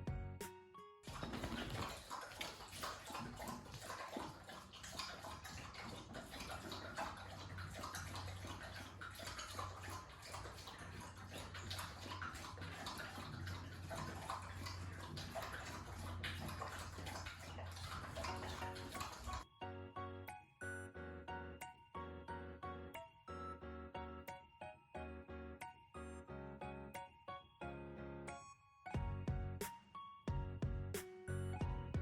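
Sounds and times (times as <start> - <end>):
water splashing and sloshing: 1.1 - 19.5.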